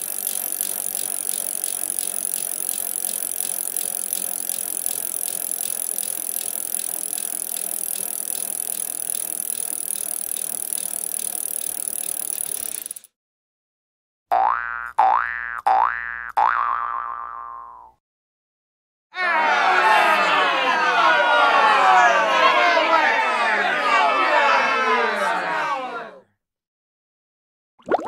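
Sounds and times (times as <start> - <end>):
bicycle rolling with rapid ticking: 0.0 - 13.1.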